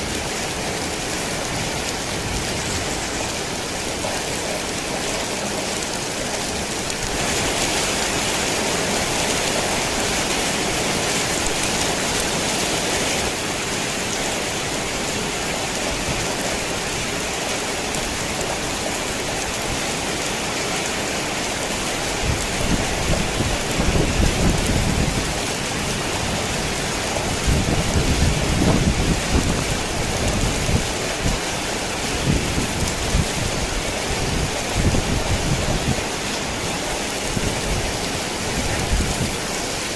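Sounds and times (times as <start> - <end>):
heavy rain on a tin roof: 0.0 - 39.9
thunder rumbling: 22.2 - 36.2.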